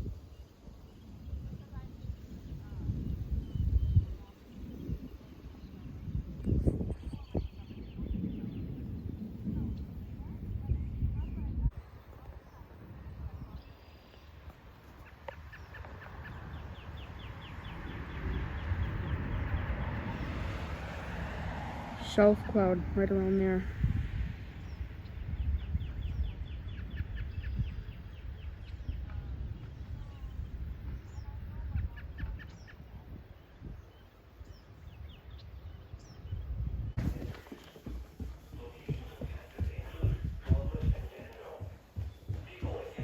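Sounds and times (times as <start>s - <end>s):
birds chirping: 0.0s - 43.0s
wind rumble on microphone: 0.0s - 43.0s
low rumble: 16.1s - 33.9s.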